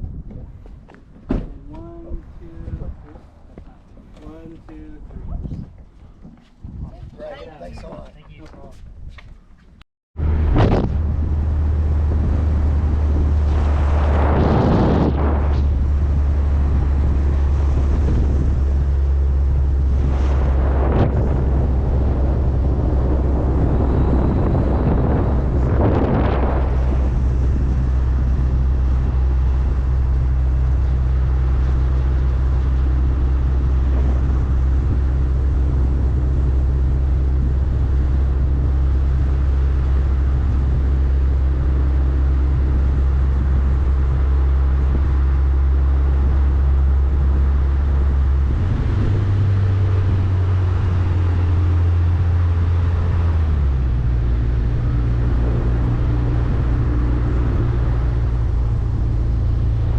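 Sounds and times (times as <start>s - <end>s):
road noise: 0.0s - 59.9s
vehicle engine drone: 10.2s - 59.9s.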